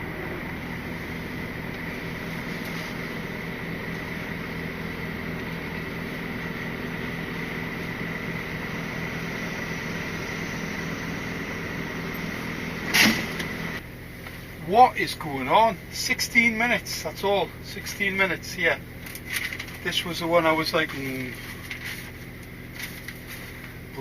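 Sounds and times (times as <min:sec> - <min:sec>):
thin high whine: 0:00.0 - 0:13.8
lorry engine idling: 0:00.0 - 0:24.0.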